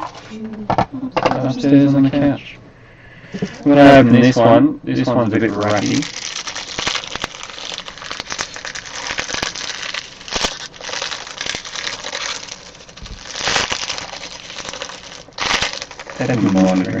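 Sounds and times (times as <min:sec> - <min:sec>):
card pack wrapper crinkling: 0:05.5 - 0:17.0.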